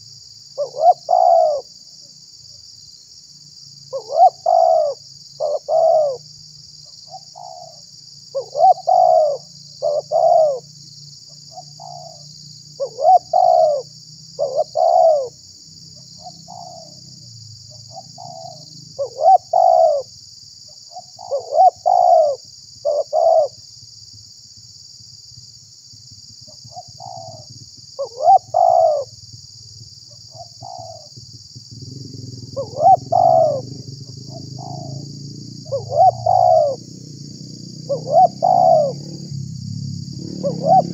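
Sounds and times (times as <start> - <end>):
dove cooing: 0.6 - 1.7, 3.9 - 6.3, 7.1 - 10.7, 11.5 - 12.2, 12.8 - 15.4, 16.0 - 17.1, 17.8 - 20.1, 20.9 - 23.6, 26.5 - 29.2, 30.3 - 40.9.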